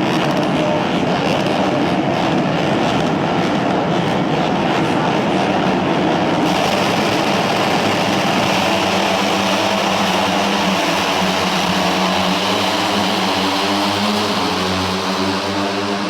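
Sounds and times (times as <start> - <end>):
engine drone: 6.3 - 16.0.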